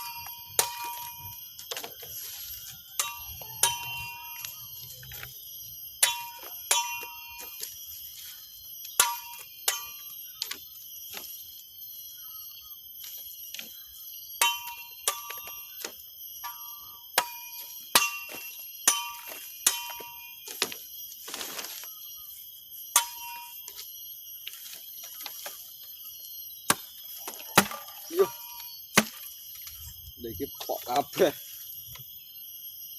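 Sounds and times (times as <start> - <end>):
machete blade striking metallically: 3.0 - 5.3, 6.0 - 7.6, 9.0 - 10.6, 16.4 - 20.4, 23.0 - 23.6.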